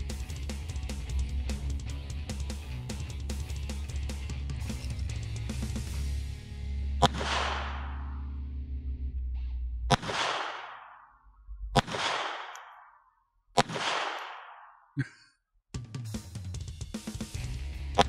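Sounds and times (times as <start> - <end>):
music: 0.0 - 9.8, 15.8 - 18.0
pistol shots with echo: 7.0 - 8.3, 9.9 - 11.2, 11.8 - 14.9.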